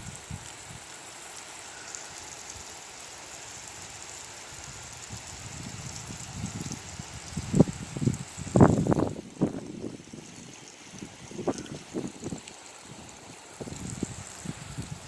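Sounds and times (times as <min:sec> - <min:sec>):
hose spraying water: 0:00.0 - 0:15.0
strong wind gusts: 0:04.7 - 0:15.0.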